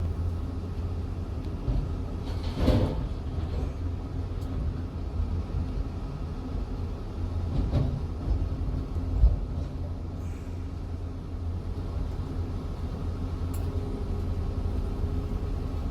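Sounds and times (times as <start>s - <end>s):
excavator diesel engine rumbling: 0.0s - 15.9s.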